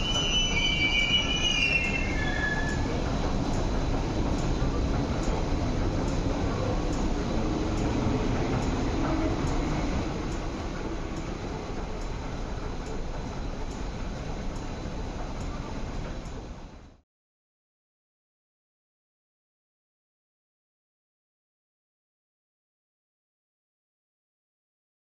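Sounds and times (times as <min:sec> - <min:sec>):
high wheel squeal: 0:00.0 - 0:03.1
train rumble: 0:00.0 - 0:17.0.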